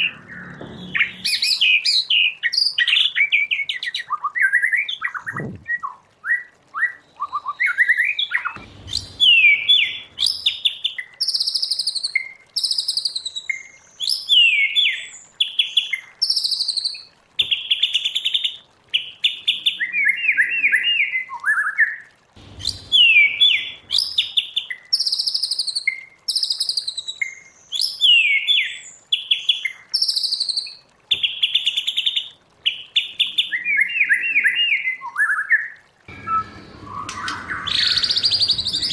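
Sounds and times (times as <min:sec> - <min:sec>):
bird singing whistled song: 0:00.0 - 0:15.2, 0:19.8 - 0:21.8, 0:22.6 - 0:28.9, 0:33.2 - 0:38.9.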